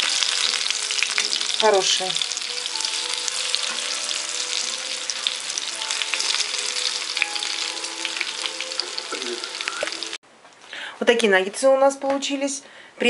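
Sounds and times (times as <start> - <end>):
chicken sizzling in frying pan: 0.0 - 10.2.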